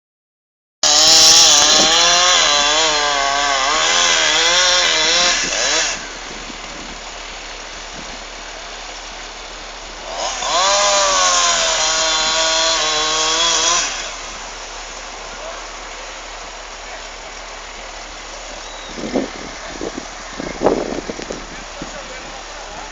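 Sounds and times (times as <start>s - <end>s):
chainsaw cutting wood: 0.8s - 8.4s, 9.7s - 15.5s.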